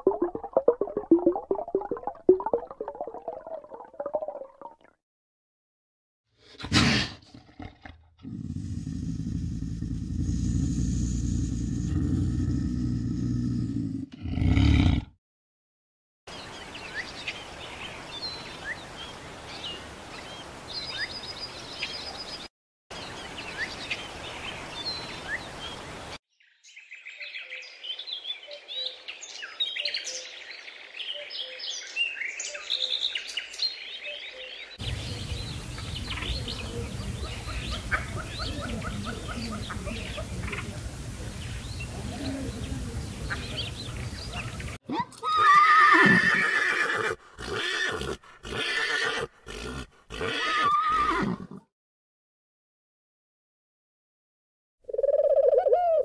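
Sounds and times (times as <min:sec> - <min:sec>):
birds chirping: 0:16.3 - 0:44.8
horse whinnying: 0:45.2 - 0:51.6.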